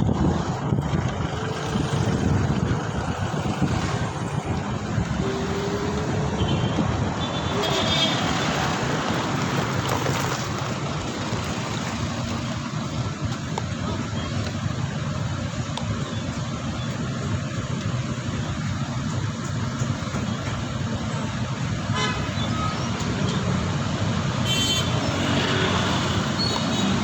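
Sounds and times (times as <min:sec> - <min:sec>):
wind rumbling on microphone: 0:00.0 - 0:16.5
road traffic noise: 0:00.0 - 0:27.0
short high vehicle tone: 0:04.8 - 0:08.6.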